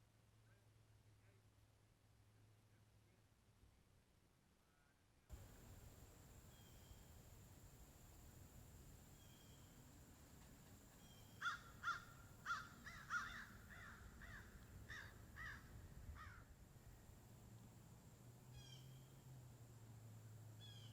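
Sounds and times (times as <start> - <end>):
bird cawing calls: 11.0 - 16.4, 18.6 - 19.1.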